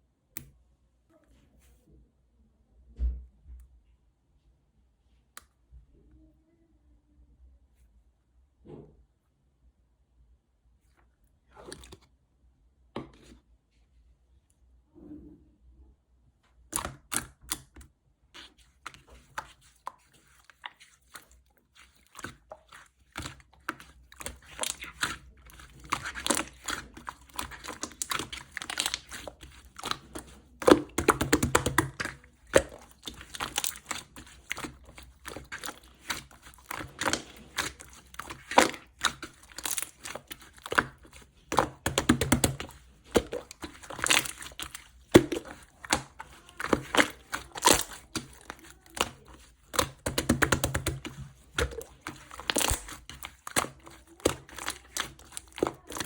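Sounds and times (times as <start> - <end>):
slime crackling and popping: 21.8 - 56.0.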